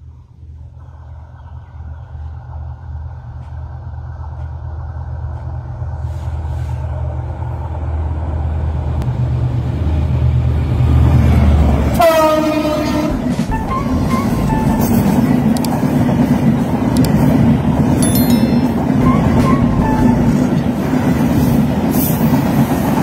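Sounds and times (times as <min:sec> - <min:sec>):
diesel locomotive engine rumble: 0:00.0 - 0:23.0
train coaches rolling: 0:10.0 - 0:23.0
train horn blast: 0:11.9 - 0:15.2.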